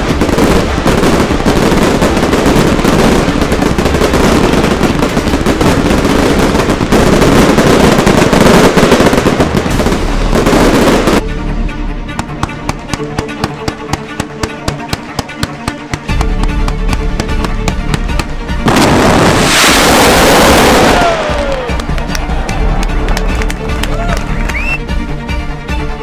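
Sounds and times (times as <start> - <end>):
fireworks and firecrackers exploding: 0.0 - 11.2, 12.4 - 22.4
music with plucked beat: 12.1 - 18.6.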